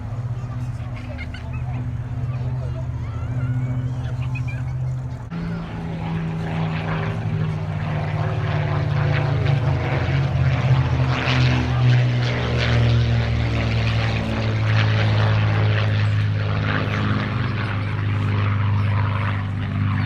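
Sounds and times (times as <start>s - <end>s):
piston aircraft engine drone: 0.0s - 20.0s.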